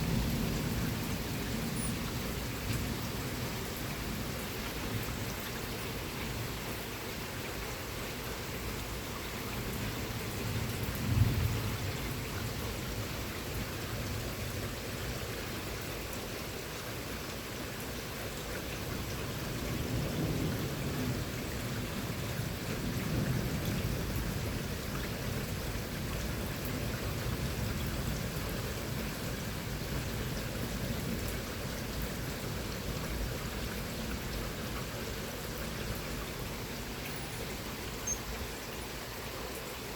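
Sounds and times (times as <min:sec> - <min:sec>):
low rumbles of thunder: 0:00.0 - 0:04.3, 0:09.6 - 0:14.6, 0:18.9 - 0:36.7
rain falling: 0:00.0 - 0:39.9.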